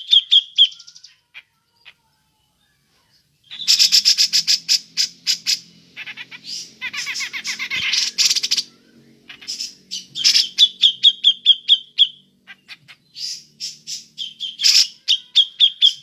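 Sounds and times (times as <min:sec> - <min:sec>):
low steady hum: 0:01.2 - 0:16.0
bird giving harsh chirps: 0:03.4 - 0:16.0.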